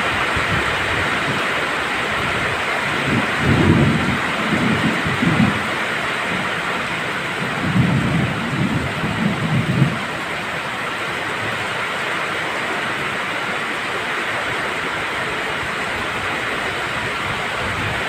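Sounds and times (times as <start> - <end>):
heavy rain: 0.0 - 18.0
thunder rumbling: 2.1 - 11.1.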